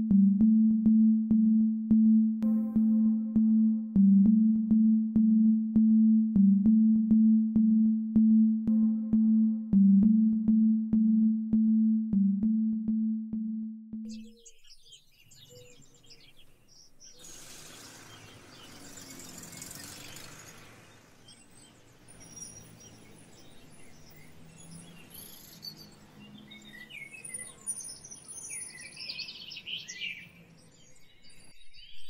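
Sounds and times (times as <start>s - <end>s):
birds chirping and twittering: 14.1s - 32.0s.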